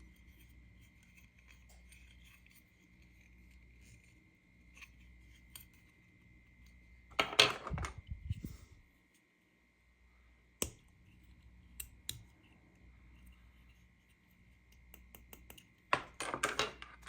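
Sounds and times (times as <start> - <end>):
plastic toy pieces clattering: 7.2 - 8.0, 16.0 - 17.0.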